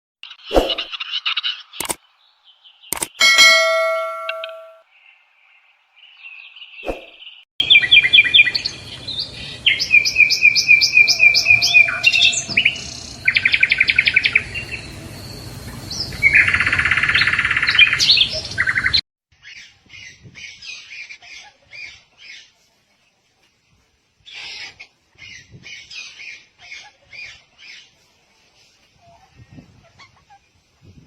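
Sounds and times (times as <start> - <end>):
songbird singing trills: 6.0 - 18.9.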